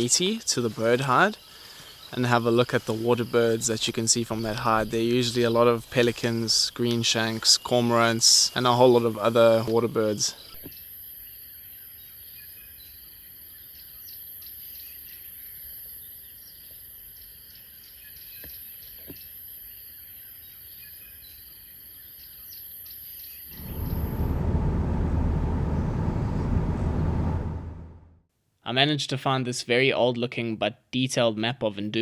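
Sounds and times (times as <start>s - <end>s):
birds chirping: 0.0s - 10.7s
insect trill: 0.7s - 9.7s
low rumble: 23.5s - 28.2s.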